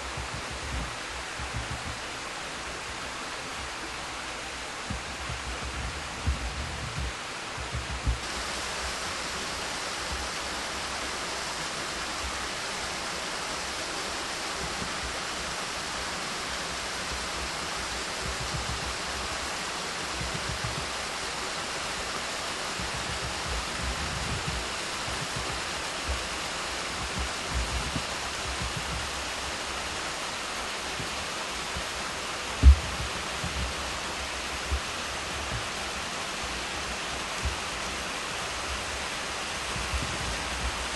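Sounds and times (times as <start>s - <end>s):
low bumps: 0.0s - 2.1s, 4.8s - 8.3s, 32.5s - 35.9s
waterfall rushing: 0.0s - 40.9s.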